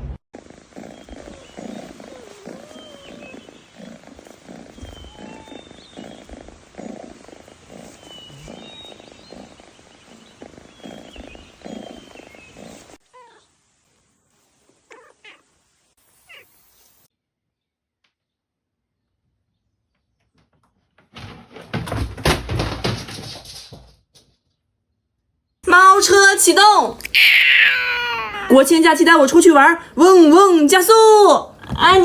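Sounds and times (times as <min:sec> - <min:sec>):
cat purring: 0:00.4 - 0:15.6
faint high chirps: 0:04.7 - 0:06.3.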